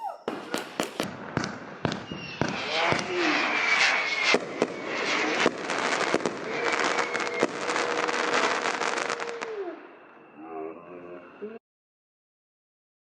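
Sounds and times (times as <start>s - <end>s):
fireworks crackling: 0.3s - 10.3s.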